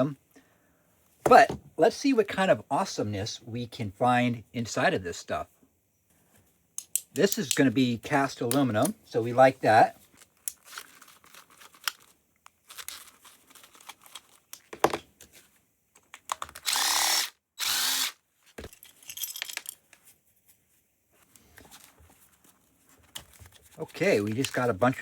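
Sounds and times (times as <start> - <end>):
clicks and handling of parts: 6.7 - 7.8, 10.0 - 16.8, 18.5 - 20.2, 21.3 - 24.7
power drill spinning: 16.6 - 18.2.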